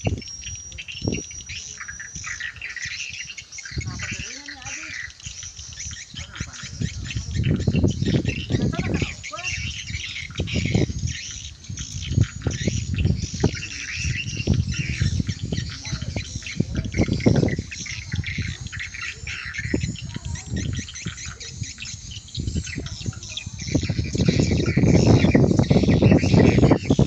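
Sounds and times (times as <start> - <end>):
swiftlets twittering: 0.0 - 27.0
dull low thumps: 5.8 - 19.0.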